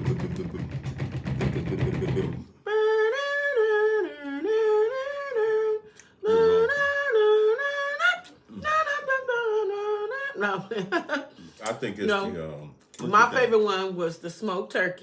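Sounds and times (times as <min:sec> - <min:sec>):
person humming a tune: 0:00.0 - 0:10.7.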